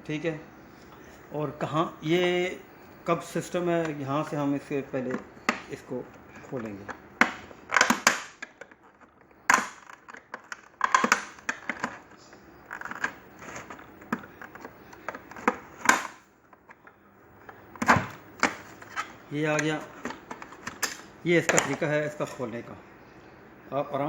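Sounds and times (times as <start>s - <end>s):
plastic housing clicking and cracking: 5.0s - 22.4s.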